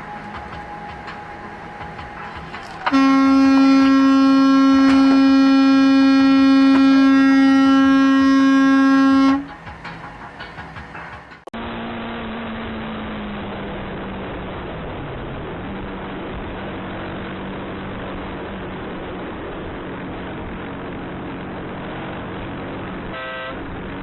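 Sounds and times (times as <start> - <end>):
car driving on road: 0.0 - 8.3, 9.3 - 24.0
horn blast: 2.7 - 9.6, 22.9 - 23.8.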